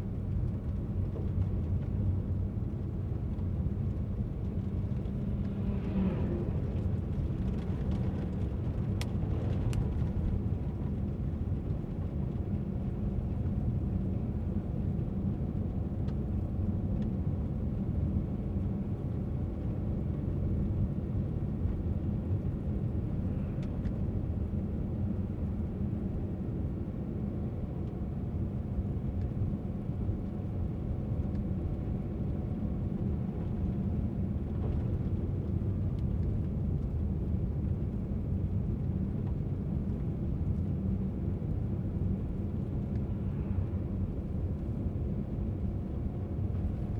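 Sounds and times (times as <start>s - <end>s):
car engine hum: 0.2s - 15.8s
road noise: 2.8s - 11.2s.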